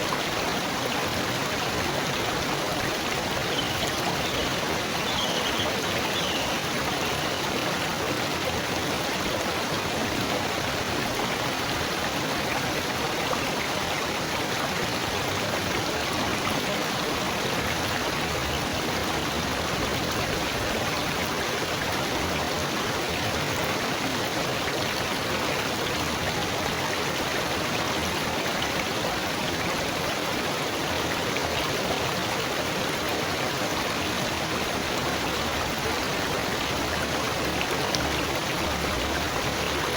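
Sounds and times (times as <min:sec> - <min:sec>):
babbling stream water: 0:00.0 - 0:39.9.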